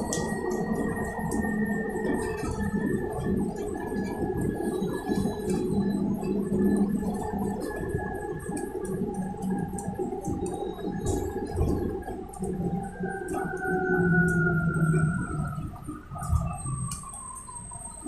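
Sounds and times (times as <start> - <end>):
rattling clicks in cabin: 9.7 - 13.6.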